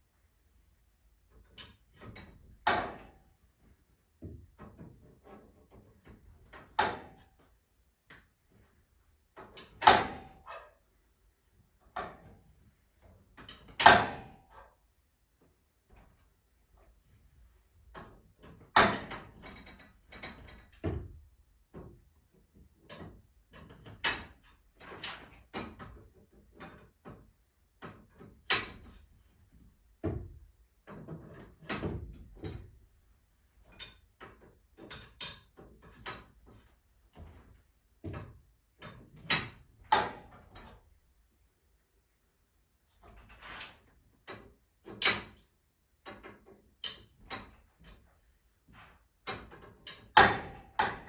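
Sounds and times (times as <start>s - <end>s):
metallic clanks and knocks: 49.3s - 51.0s.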